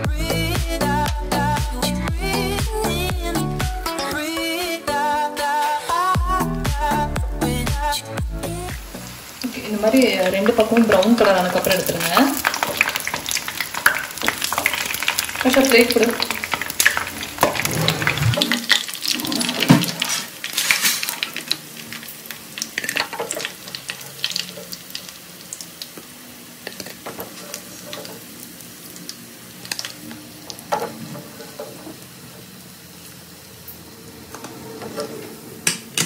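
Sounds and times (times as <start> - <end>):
food deep-frying in oil: 7.8 - 34.4.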